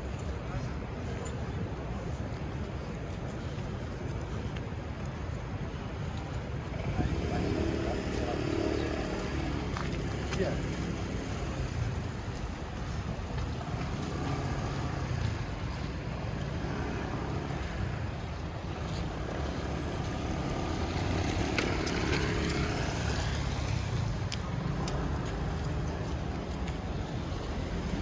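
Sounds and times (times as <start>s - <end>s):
traffic rumble: 0.0s - 28.0s
vehicle passing: 6.7s - 28.0s.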